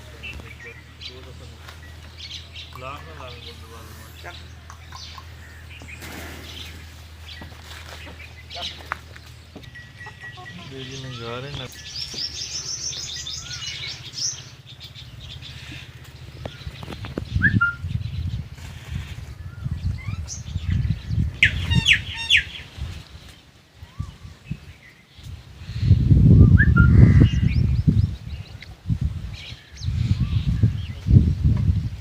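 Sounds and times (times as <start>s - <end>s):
low rumbling noise: 0.0s - 23.2s
birds chirping and calling: 0.0s - 32.0s.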